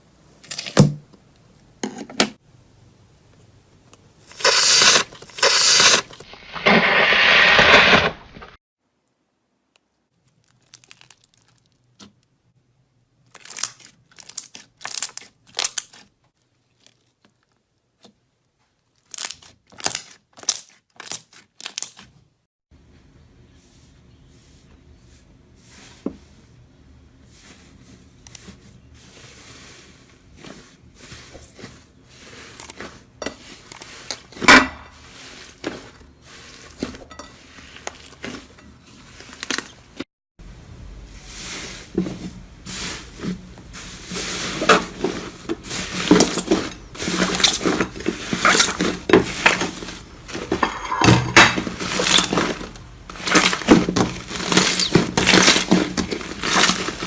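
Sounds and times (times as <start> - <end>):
dense crackling and crunching: 4.2 - 8.6, 10.1 - 12.2, 13.2 - 17.7, 27.3 - 57.0.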